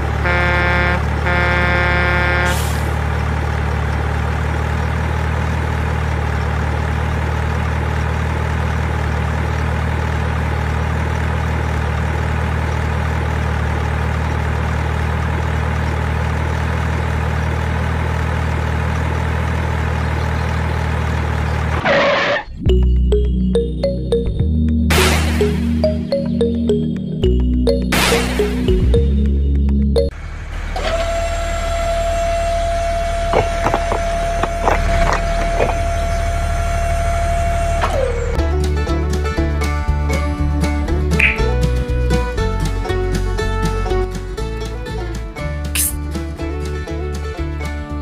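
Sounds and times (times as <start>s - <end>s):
truck horn blasts: 0.0s - 3.0s, 30.8s - 38.4s
truck engine running: 0.0s - 48.0s.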